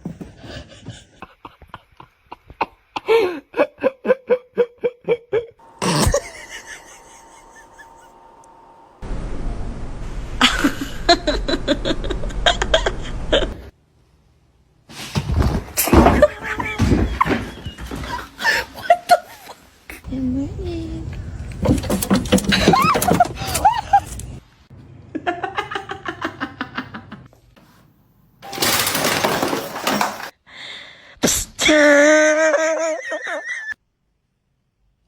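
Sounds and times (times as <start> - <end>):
background noise: 0.0 - 6.4, 8.1 - 35.0
people laughing: 3.6 - 8.6, 10.4 - 13.7, 16.0 - 19.6, 22.5 - 24.4, 25.1 - 27.3.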